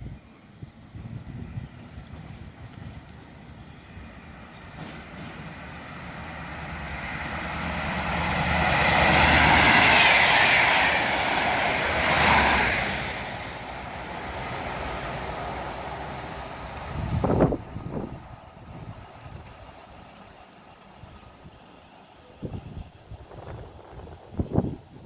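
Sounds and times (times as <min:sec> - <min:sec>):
diesel train engine: 0:00.0 - 0:25.0.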